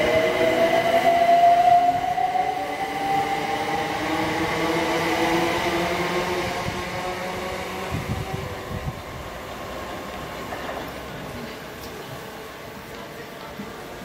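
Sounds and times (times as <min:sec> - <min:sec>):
electric train whine: 0:00.0 - 0:10.5.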